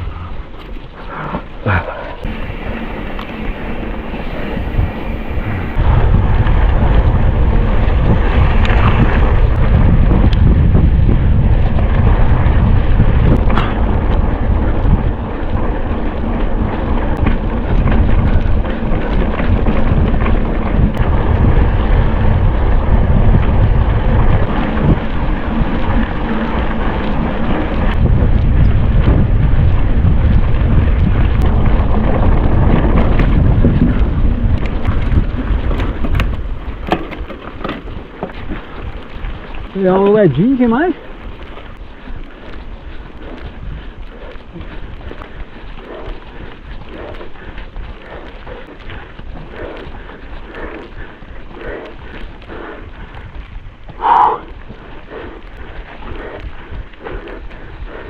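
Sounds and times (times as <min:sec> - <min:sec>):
wind buffeting microphone: 0:00.0 - 0:58.0
tyre rumble: 0:00.7 - 0:05.8, 0:06.8 - 0:39.8
bike rattling and knocking: 0:02.2 - 0:05.8, 0:07.4 - 0:42.5.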